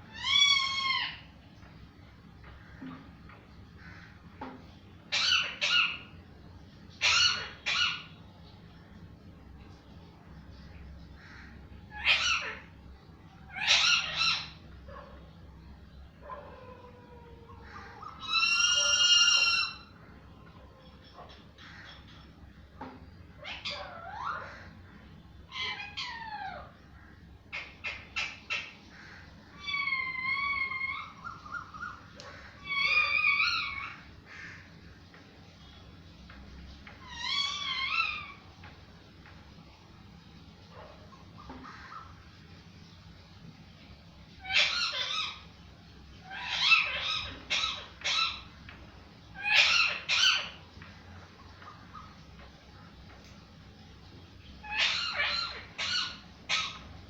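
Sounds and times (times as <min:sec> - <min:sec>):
parrot calling: 0:00.0 - 0:01.5, 0:02.7 - 0:06.2, 0:06.9 - 0:08.2, 0:11.2 - 0:12.8, 0:13.4 - 0:15.2, 0:16.2 - 0:34.8, 0:36.8 - 0:38.8, 0:44.4 - 0:53.1, 0:54.5 - 0:57.0.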